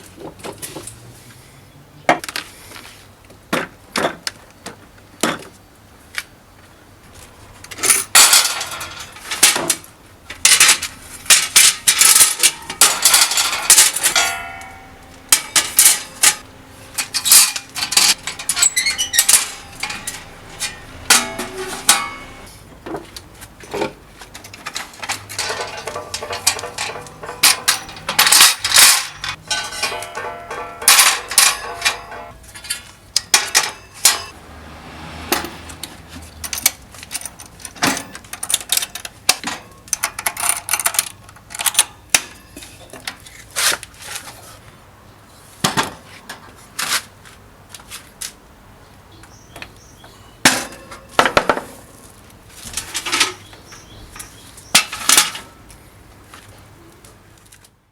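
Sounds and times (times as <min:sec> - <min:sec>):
metal pieces clanking: 0:07.7 - 0:22.5, 0:24.5 - 0:34.3.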